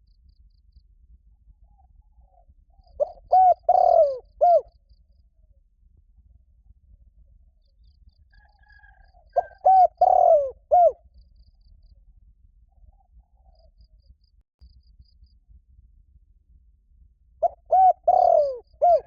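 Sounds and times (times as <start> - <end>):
dove cooing: 2.9 - 4.7, 8.7 - 11.0, 17.4 - 19.0.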